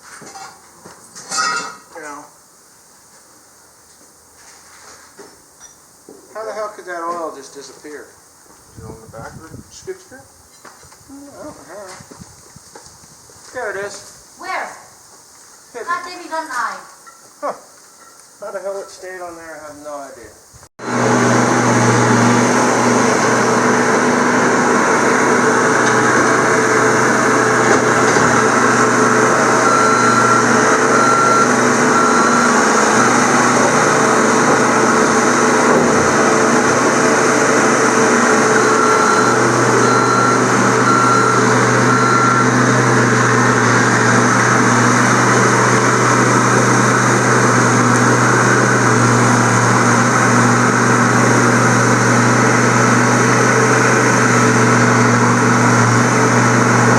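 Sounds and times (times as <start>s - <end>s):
skid steer engine running: 20.8s - 56.9s
short high beeps: 29.6s - 32.5s, 38.6s - 42.6s.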